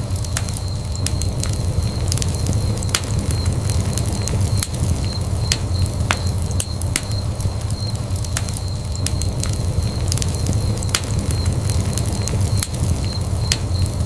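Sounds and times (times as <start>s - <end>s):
fire crackling and popping: 0.0s - 14.0s
fire rumbling: 0.0s - 14.0s.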